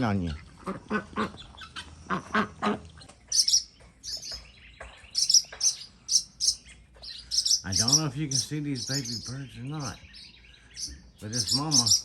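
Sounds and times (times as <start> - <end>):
ducks quacking: 0.0 - 4.4, 5.2 - 10.0, 10.7 - 12.0
small birds alarm chirps: 0.0 - 12.0.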